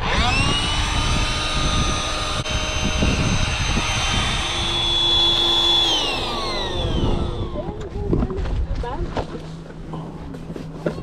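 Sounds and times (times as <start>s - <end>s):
drone propellers whining: 0.0s - 8.4s
wind rumbling on microphone: 0.0s - 9.4s.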